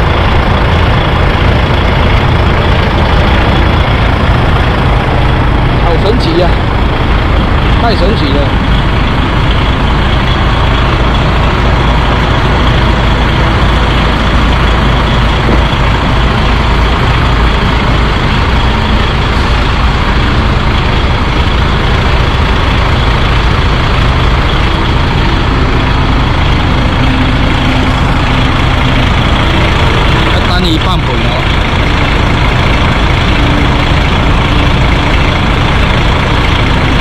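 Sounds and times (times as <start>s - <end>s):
truck diesel engine idling: 0.0s - 37.0s.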